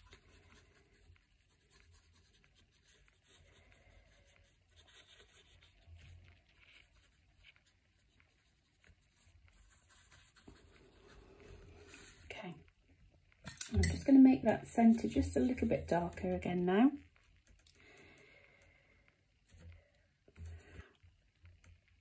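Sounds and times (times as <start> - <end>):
paintbrush scratching on paper: 0.0 - 12.4.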